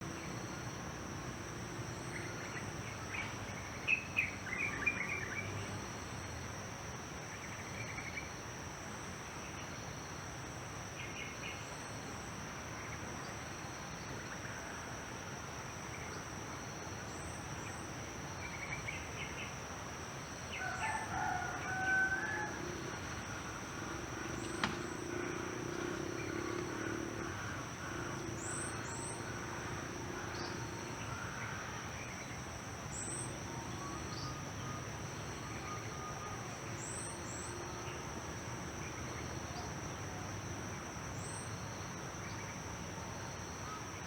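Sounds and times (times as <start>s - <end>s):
high insect drone: 0.0s - 44.0s
rooster crowing: 20.5s - 24.0s.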